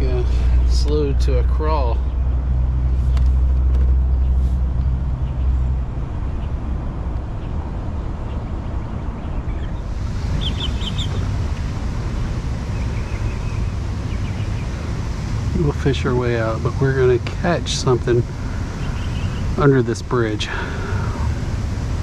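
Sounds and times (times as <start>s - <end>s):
road traffic rumble: 0.0s - 22.0s
vehicle passing: 0.0s - 22.0s
bird chirps: 9.2s - 11.3s, 12.7s - 14.8s, 18.6s - 19.6s.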